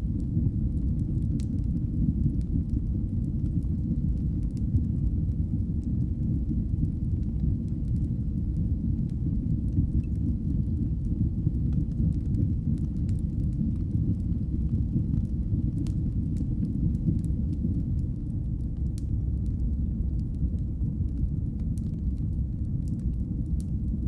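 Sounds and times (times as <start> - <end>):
fire crackling: 0.0 - 24.0
fire flames roaring: 0.0 - 24.0.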